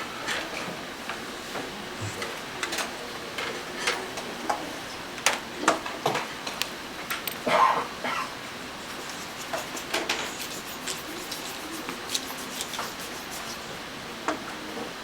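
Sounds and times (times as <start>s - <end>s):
small tools clicking and tapping: 8.9s - 13.6s.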